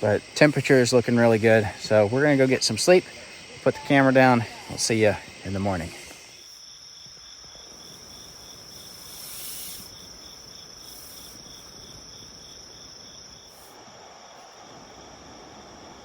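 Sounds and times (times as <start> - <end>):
soft even hiss: 0.0 - 12.6
insect high trill: 0.0 - 16.0
pulsing insect chirp: 0.0 - 16.0.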